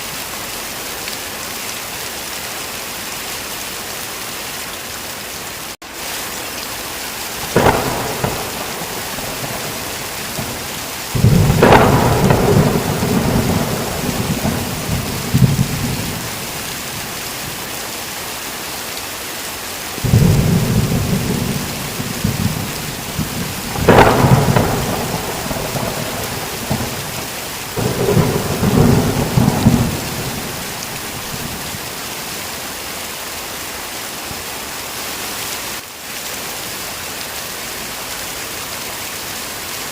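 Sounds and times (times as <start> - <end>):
heavy rain: 0.0 - 39.9
thunder claps and rumbles: 7.4 - 17.6, 20.0 - 32.3.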